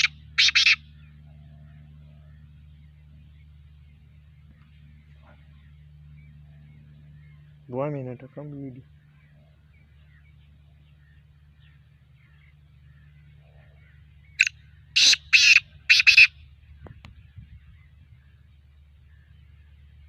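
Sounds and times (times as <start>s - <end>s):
francolin calling: 0.0s - 2.8s, 9.0s - 16.4s
faint low hum: 0.0s - 20.0s.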